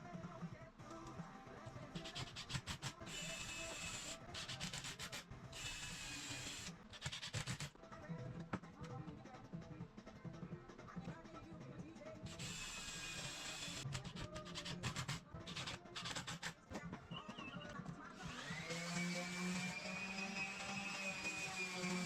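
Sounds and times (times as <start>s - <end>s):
quiet background music: 0.0s - 22.0s
rapid clicking: 2.0s - 5.2s, 6.4s - 7.8s, 13.1s - 16.6s.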